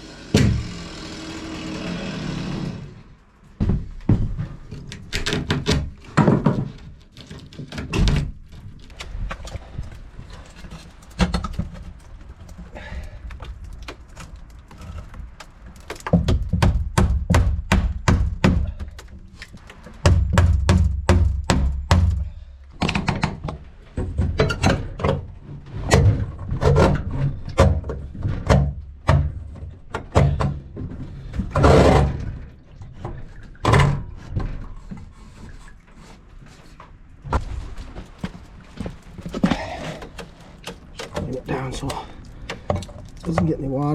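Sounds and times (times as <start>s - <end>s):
knocks and thuds: 3.6s - 4.6s, 16.0s - 19.1s, 20.0s - 32.4s.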